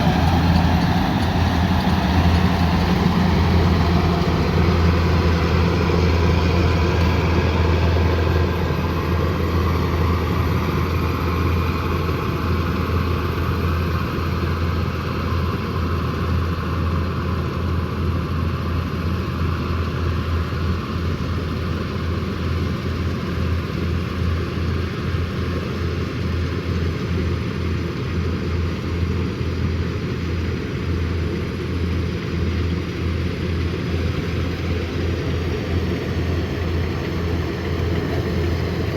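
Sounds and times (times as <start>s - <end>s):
combine harvester engine droning: 0.0s - 38.9s.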